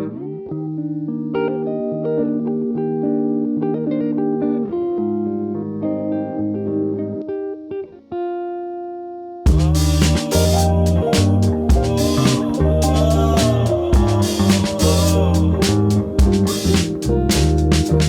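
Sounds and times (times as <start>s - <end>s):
bass line: 9.5s - 18.0s.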